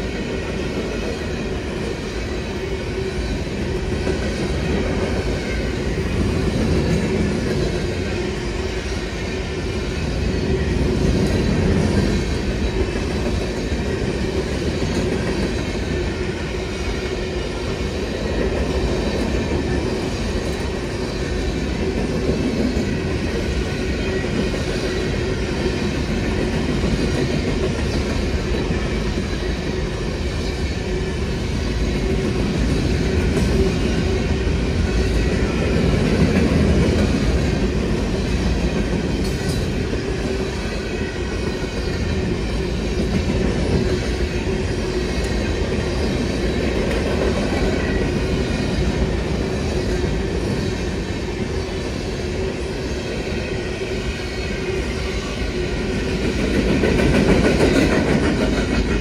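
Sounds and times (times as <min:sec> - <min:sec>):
freight train rolling past: 0:00.0 - 0:59.0.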